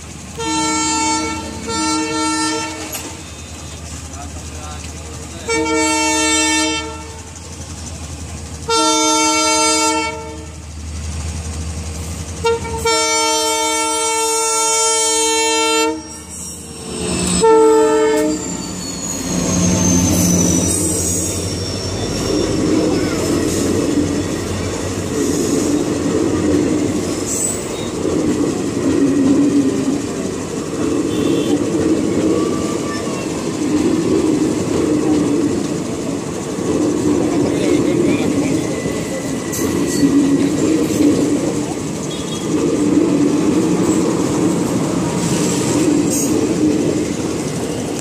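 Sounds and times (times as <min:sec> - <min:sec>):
locomotive engine rumble: 0:00.0 - 0:48.0
train coaches rolling on rails: 0:00.0 - 0:48.0
locomotive horn blasts: 0:00.4 - 0:03.2, 0:05.5 - 0:07.3, 0:08.7 - 0:10.6, 0:12.4 - 0:16.4, 0:17.1 - 0:21.4, 0:31.0 - 0:31.8, 0:42.0 - 0:42.6.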